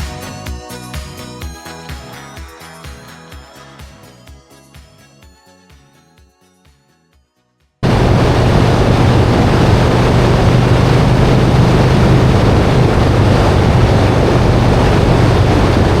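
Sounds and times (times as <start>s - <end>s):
motorcycle engine drone: 7.8s - 16.0s
wind rush on microphone: 7.8s - 16.0s.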